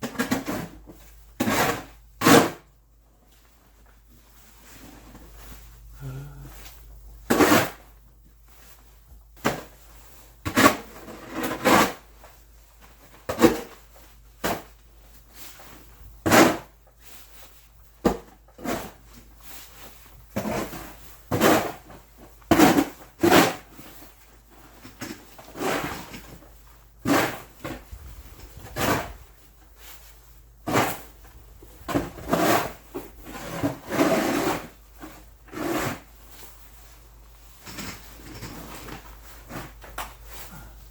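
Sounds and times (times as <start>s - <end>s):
snow shovel scraping snow: 27.0s - 29.3s, 31.9s - 36.1s.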